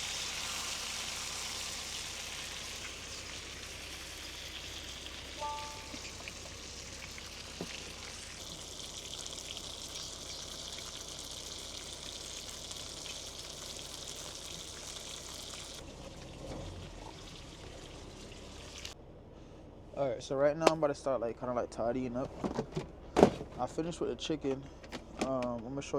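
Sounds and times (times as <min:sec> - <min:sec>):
chicken sizzling in a pan: 0:00.0 - 0:15.8
short ringing tone: 0:05.4 - 0:06.2.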